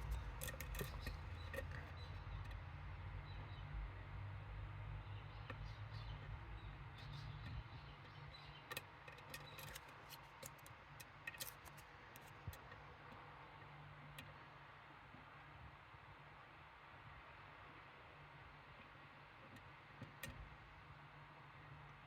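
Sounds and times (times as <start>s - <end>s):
small metallic clicks: 0.0s - 2.6s, 7.2s - 13.2s
low hum: 0.0s - 7.9s.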